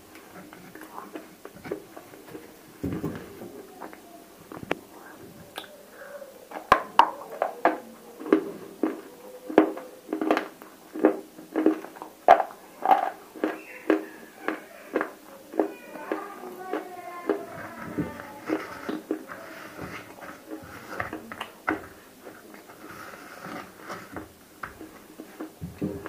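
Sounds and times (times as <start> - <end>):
crunchy chewing: 0.1 - 26.0.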